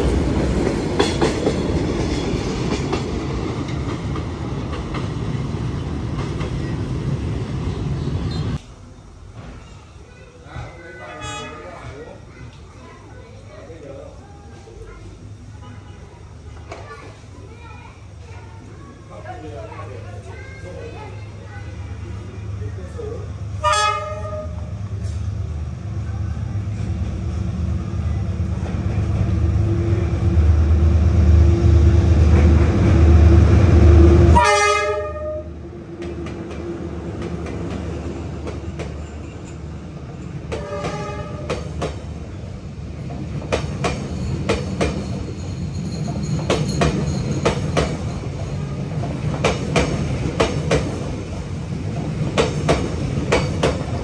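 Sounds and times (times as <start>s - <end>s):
train horn: 11.1s - 11.8s, 23.6s - 24.7s, 33.8s - 35.6s, 40.5s - 41.6s
locomotive engine passing: 20.9s - 54.0s
carriages clattering over rail joints: 43.0s - 54.0s.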